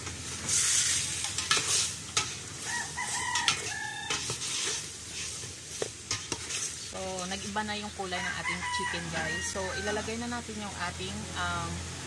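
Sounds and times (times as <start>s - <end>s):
chicken sizzling in a pot: 0.0s - 12.0s
rooster crowing: 2.6s - 4.4s, 8.1s - 10.2s.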